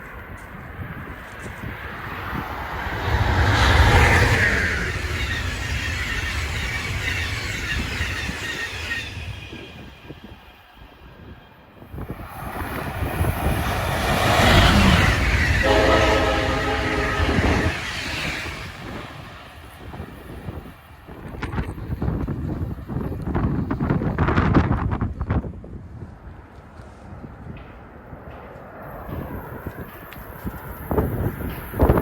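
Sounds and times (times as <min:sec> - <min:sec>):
train running past: 0:00.0 - 0:32.0
train horn blast: 0:14.7 - 0:17.9.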